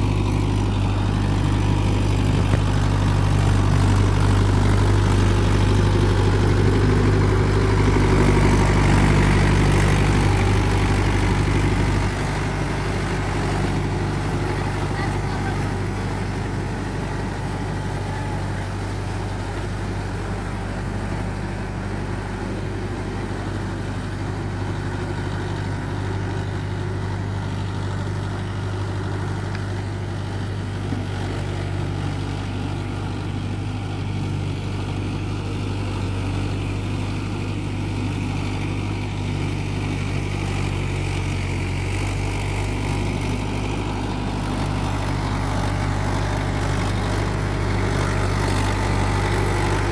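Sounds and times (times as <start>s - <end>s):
tractor diesel engine droning: 0.0s - 49.9s.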